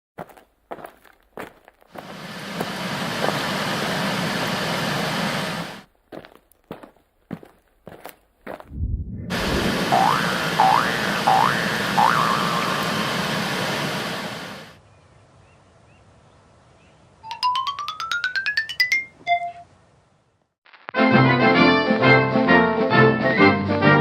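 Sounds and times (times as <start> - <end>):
rising chirps: 8.7 - 13.3, 17.2 - 19.5
rising run of short notes: 8.7 - 13.4
hissing burst: 8.7 - 14.8
brief tone: 19.2 - 19.7.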